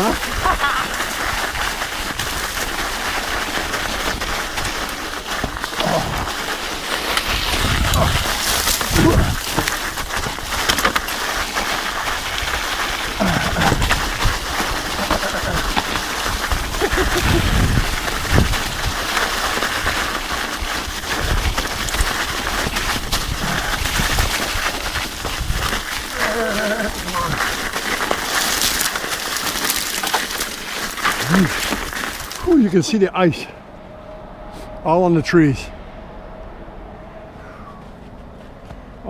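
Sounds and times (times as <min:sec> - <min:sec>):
bike rattling: 0:00.0 - 0:33.3
studded tyres crunching on ice: 0:00.0 - 0:33.5
low rumble: 0:32.3 - 0:39.0.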